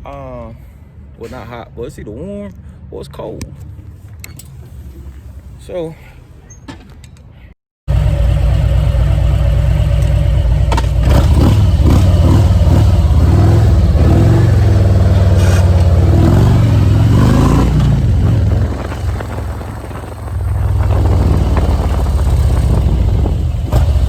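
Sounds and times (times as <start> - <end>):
motorcycle engine revving: 7.9 - 24.0.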